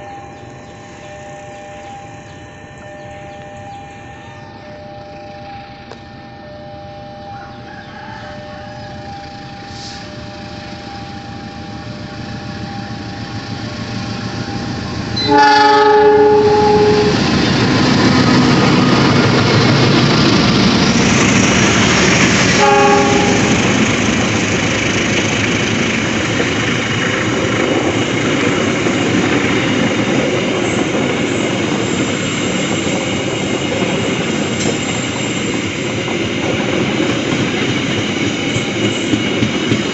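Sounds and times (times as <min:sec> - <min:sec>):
level crossing alarm: 0:00.0 - 0:39.9
train wheels clacking on rails: 0:09.0 - 0:39.9
train horn blast: 0:09.5 - 0:10.2, 0:15.2 - 0:17.4, 0:22.5 - 0:23.8.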